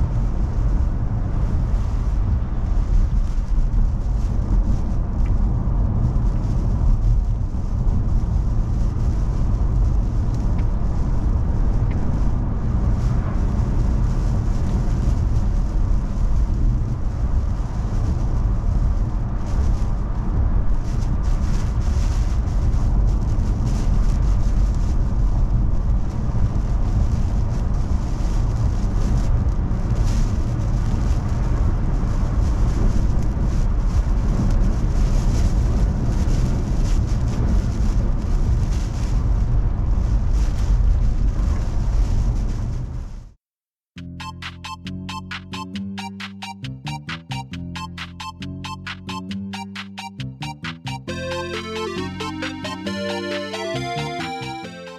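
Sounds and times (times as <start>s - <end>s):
car driving rumble from inside: 0.0s - 43.2s.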